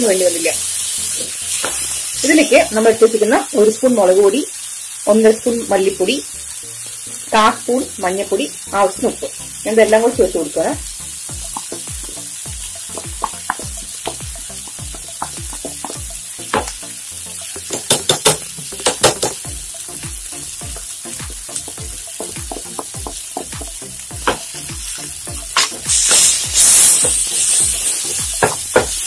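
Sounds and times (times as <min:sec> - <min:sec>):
spices sizzling in hot oil: 0:00.0 - 0:29.0
spatula clicking on pan: 0:17.7 - 0:19.4.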